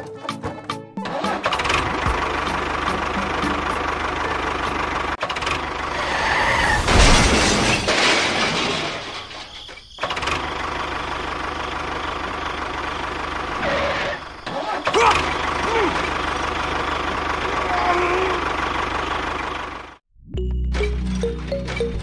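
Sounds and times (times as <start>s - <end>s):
engine running: 1.0s - 6.4s, 10.0s - 20.0s.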